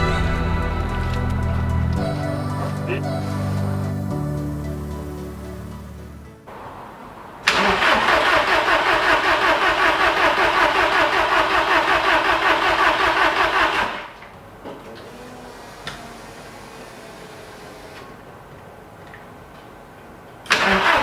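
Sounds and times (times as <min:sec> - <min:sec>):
car engine cranking on starter: 0:07.5 - 0:14.2, 0:20.5 - 0:21.0.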